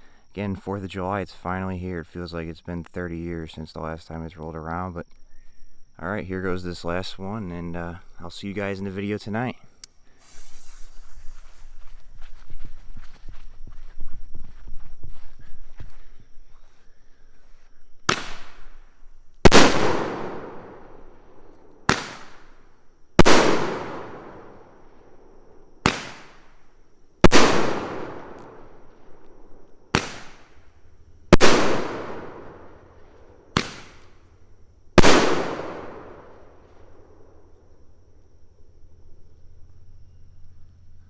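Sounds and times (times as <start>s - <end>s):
firework bangs: 18.1s - 18.7s, 19.5s - 21.0s, 21.8s - 22.5s, 23.2s - 24.6s, 25.8s - 26.5s, 27.2s - 28.8s, 29.9s - 30.6s, 31.3s - 34.2s, 35.0s - 36.5s.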